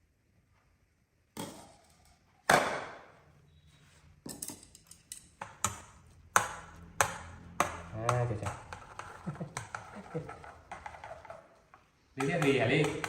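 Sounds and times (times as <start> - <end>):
kitchenware knocking and clinking: 4.3 - 11.6, 12.2 - 13.0.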